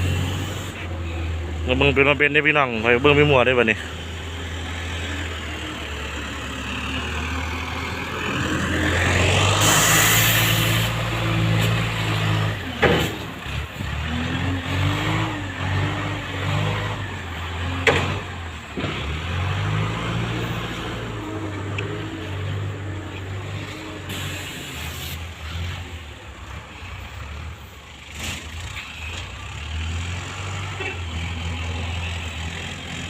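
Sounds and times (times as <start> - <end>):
diesel engine revving: 0.0 - 33.0
sharp knocks: 17.8 - 18.2.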